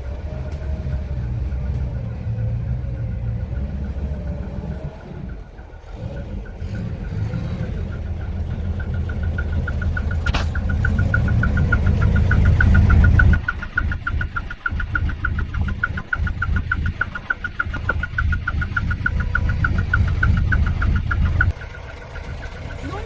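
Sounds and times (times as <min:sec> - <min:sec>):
truck diesel engine revving: 0:00.0 - 0:23.0
rapid high-pitched beeping: 0:03.1 - 0:23.0
sharp click: 0:10.0 - 0:21.6.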